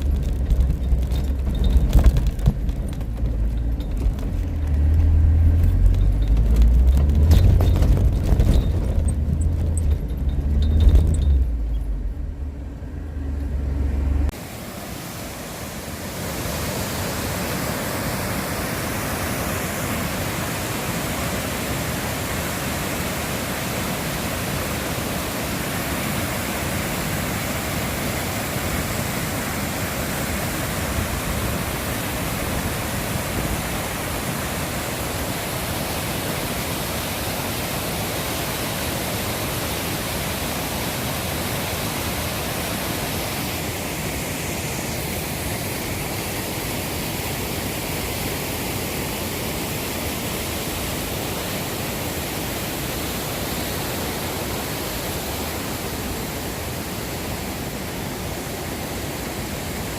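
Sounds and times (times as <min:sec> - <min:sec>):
car engine and road rumble: 0:00.0 - 0:14.9.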